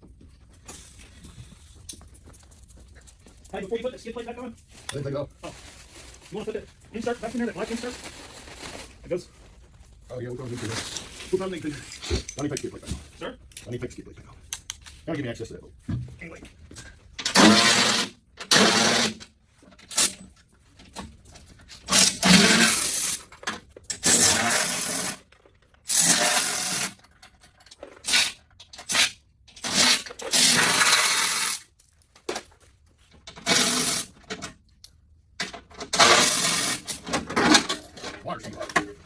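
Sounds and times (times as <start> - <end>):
power tool whirring: 17.3 - 19.2.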